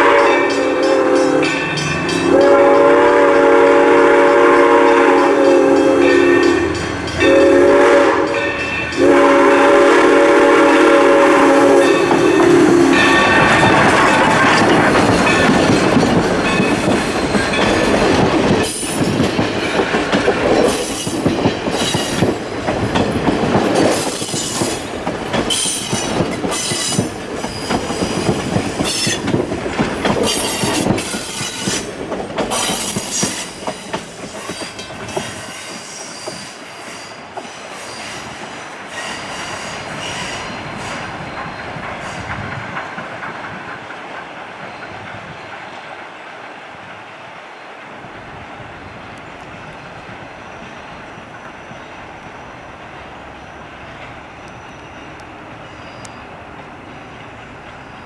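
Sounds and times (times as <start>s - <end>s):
train wheels clicking over rail joints: 8.6s - 47.1s
train wheels squealing: 11.8s - 19.8s, 20.6s - 23.0s, 23.8s - 24.9s, 25.5s - 29.3s, 30.1s - 42.8s, 44.5s - 45.8s, 49.5s - 58.0s.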